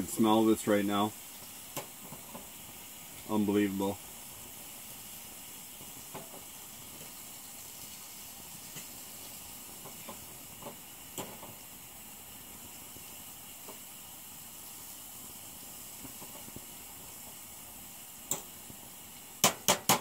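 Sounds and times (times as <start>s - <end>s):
onions and mushrooms sizzling: 0.0s - 20.0s
utensil clicking against pan: 18.3s - 18.5s.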